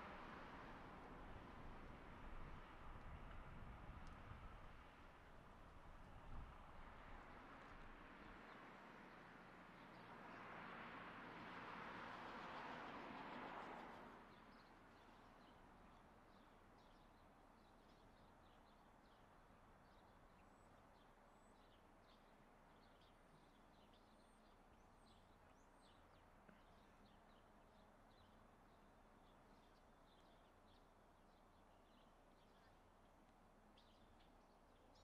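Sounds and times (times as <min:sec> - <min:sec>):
small birds chirping: 0:14.3 - 0:35.0.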